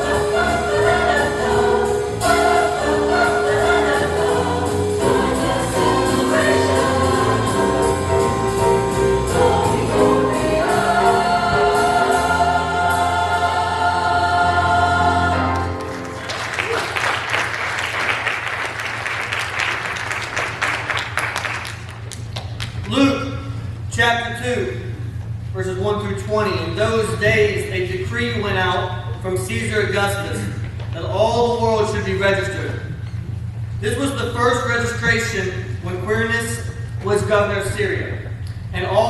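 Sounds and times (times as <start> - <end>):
choir singing with accompaniment: 0.0 - 16.3
congregation applauding: 15.5 - 22.9.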